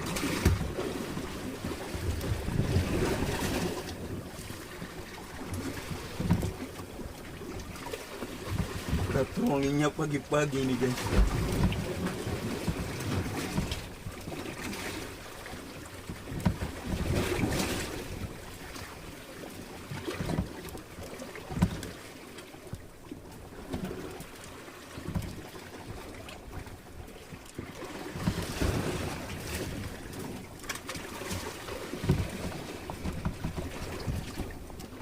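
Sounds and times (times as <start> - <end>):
boat under way: 0.0 - 35.0
wind and water rushing: 0.0 - 35.0
wind thumping on microphone: 10.6 - 14.0.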